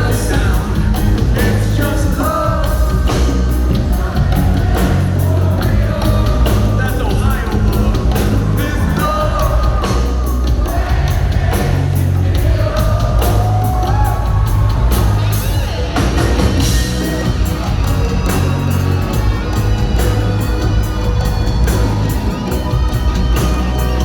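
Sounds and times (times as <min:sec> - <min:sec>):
person singing: 0:00.0 - 0:15.0
heavy bass line: 0:00.0 - 0:24.0
live reggae band playing: 0:00.0 - 0:24.0
steady drum beat: 0:00.0 - 0:24.0.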